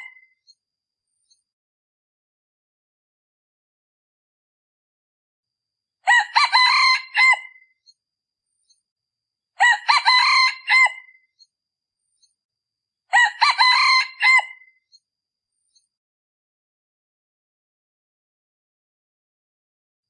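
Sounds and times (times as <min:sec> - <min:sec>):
rooster crowing: 0:06.1 - 0:07.6, 0:09.6 - 0:11.1, 0:13.1 - 0:14.6.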